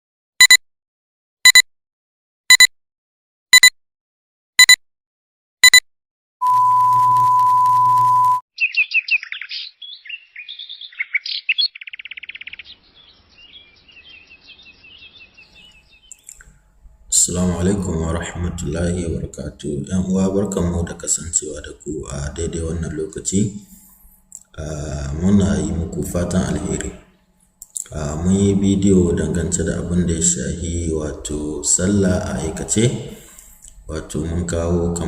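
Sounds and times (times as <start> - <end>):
short beeps: 2.5 - 2.7, 4.6 - 4.8, 5.6 - 5.8, 6.4 - 8.4
birds chirping and trilling: 8.5 - 26.9, 27.6 - 35.0
steady high tone: 17.0 - 21.1.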